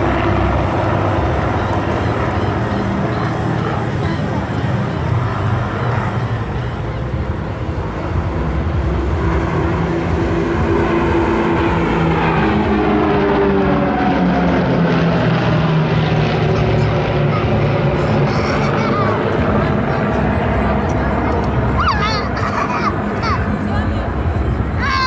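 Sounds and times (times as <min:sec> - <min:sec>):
propeller aircraft droning overhead: 0:00.0 - 0:25.0.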